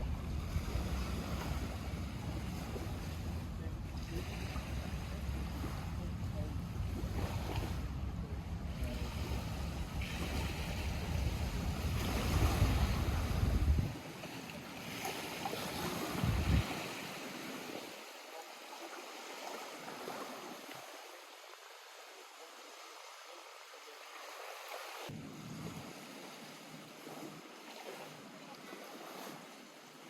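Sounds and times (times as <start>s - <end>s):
wind buffeting microphone: 0.0s - 3.6s, 6.6s - 14.0s, 16.0s - 17.0s
waves lapping at shore: 0.0s - 30.0s.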